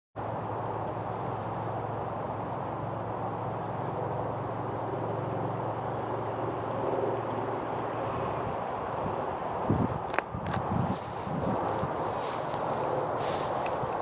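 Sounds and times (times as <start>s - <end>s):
distant vehicle rumble: 10.9s - 14.0s.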